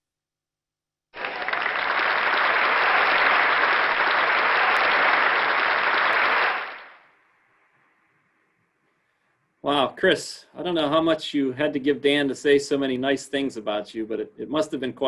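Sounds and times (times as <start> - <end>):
crowd applause: 1.2 - 7.0.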